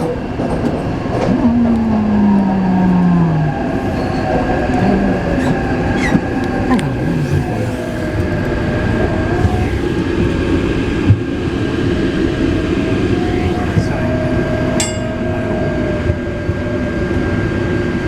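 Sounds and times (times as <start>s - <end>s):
train wheel and rail noise: 0.0s - 18.0s
electric motor whine: 3.5s - 11.0s, 12.1s - 17.3s.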